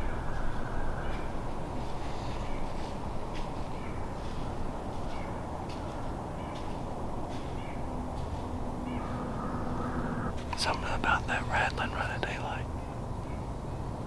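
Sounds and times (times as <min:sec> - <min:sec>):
low rushing background: 0:00.0 - 0:13.1
crows cawing: 0:08.8 - 0:10.3.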